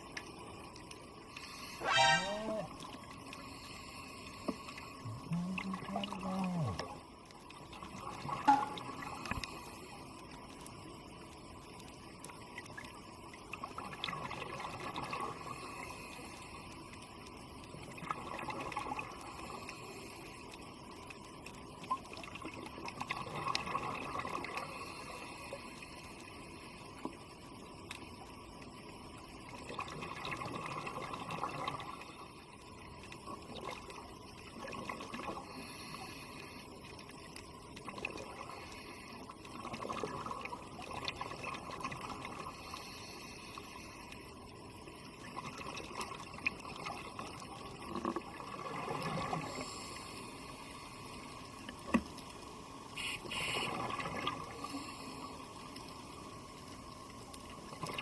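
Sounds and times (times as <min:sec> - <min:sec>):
underwater hiss: 0:01.2 - 0:07.0, 0:08.5 - 0:10.6, 0:14.8 - 0:17.3, 0:19.0 - 0:20.7, 0:24.3 - 0:27.1, 0:35.3 - 0:37.0, 0:38.3 - 0:39.3, 0:42.3 - 0:44.4, 0:47.2 - 0:52.0, 0:52.9 - 0:56.8
exhaled breath bubbling underwater: 0:04.9 - 0:07.1.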